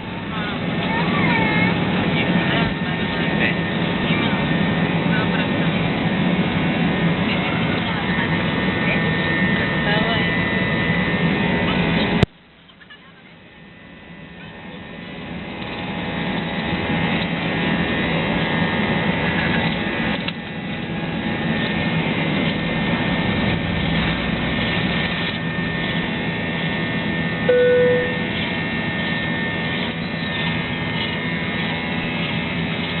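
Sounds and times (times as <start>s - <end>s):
jet engines roaring: 0.0s - 12.2s, 14.7s - 33.0s
single beep: 27.5s - 28.3s.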